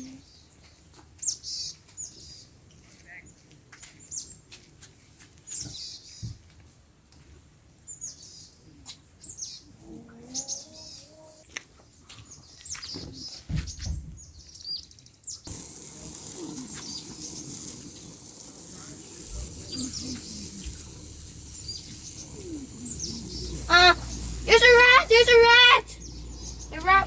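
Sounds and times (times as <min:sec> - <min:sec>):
wild birds chirping: 0:07.9 - 0:27.0
water hissing: 0:15.5 - 0:27.0.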